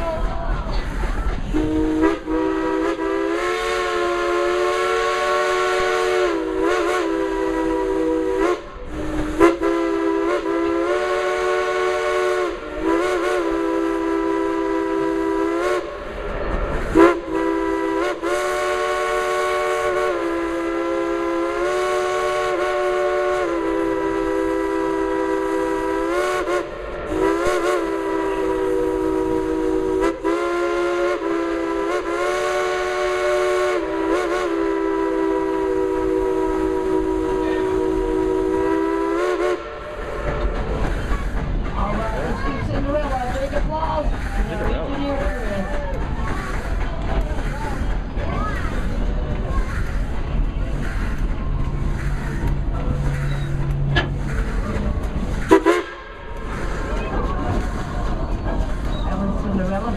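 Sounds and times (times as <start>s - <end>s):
steam locomotive whistle blowing: 1.5s - 16.1s, 16.9s - 40.6s, 55.4s - 56.8s.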